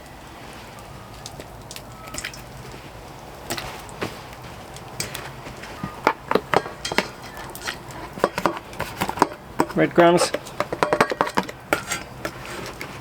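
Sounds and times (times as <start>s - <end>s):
cooking pots and utensils clinking: 3.5s - 13.0s.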